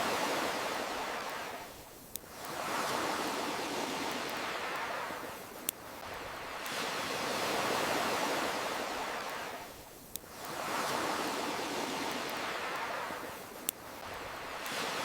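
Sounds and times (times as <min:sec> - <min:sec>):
ocean surf washing: 0:00.0 - 0:15.0
campfire crackling pops: 0:01.2 - 0:02.6, 0:04.0 - 0:06.8, 0:09.3 - 0:10.6, 0:12.0 - 0:14.9.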